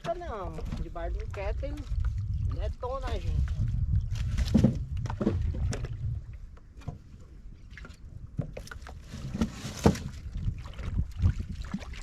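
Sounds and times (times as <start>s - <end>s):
wind rumbling on microphone: 0.0s - 12.0s
knocks and clunks of firewood: 4.0s - 7.1s, 8.3s - 10.5s.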